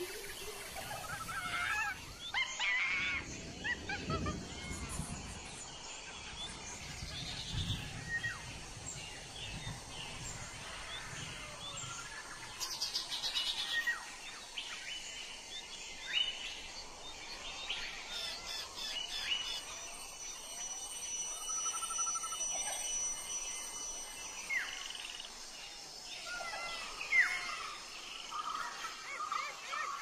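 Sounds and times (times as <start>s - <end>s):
birds chirping: 0.0s - 30.0s
rapid high bird trill: 18.6s - 25.4s
low buzzy bird trill: 18.6s - 30.0s
thin steady high tone: 19.0s - 30.0s.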